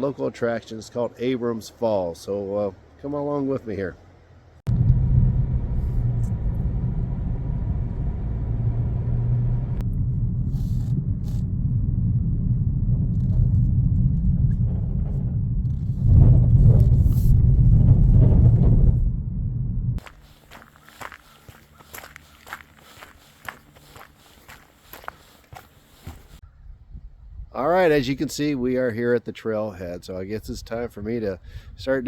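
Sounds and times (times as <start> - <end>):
car driving on road: 4.0 - 26.4.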